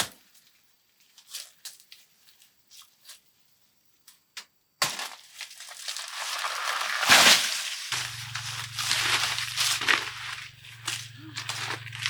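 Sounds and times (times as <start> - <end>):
loud rustling crinkling: 5.2 - 12.0.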